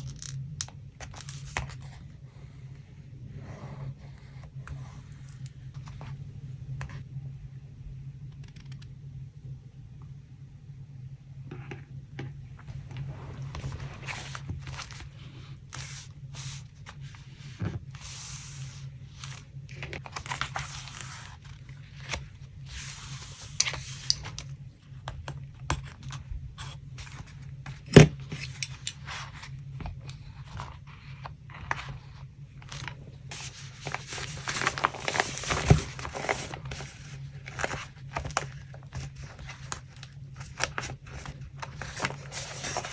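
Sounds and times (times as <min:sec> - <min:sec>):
steady low hum: 0:00.0 - 0:42.9
paper crinkling and tearing: 0:32.7 - 0:42.9.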